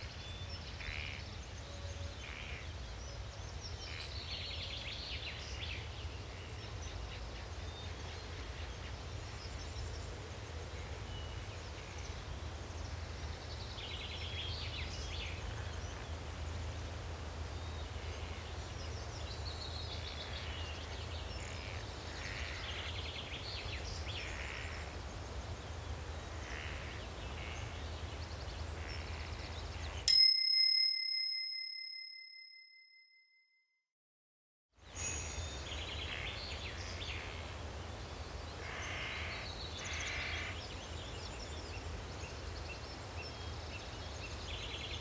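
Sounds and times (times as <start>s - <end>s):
timer bell ding: 30.1s - 33.2s, 34.9s - 35.8s.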